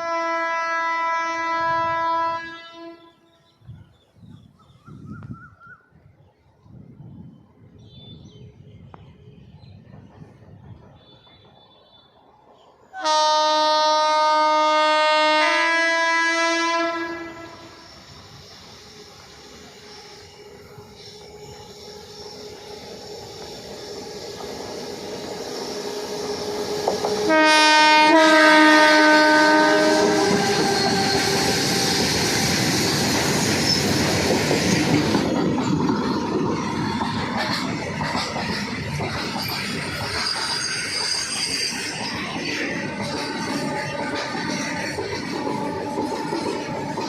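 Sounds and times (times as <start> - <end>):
locomotive horn blast: 0.0 - 3.4, 13.0 - 18.0, 25.8 - 31.8
train wheels rumbling on track: 3.6 - 47.0.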